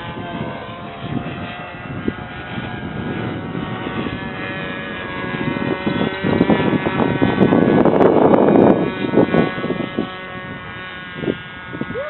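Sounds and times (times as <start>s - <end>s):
low rumble: 0.0s - 12.0s
model airplane engine whining: 0.0s - 12.0s.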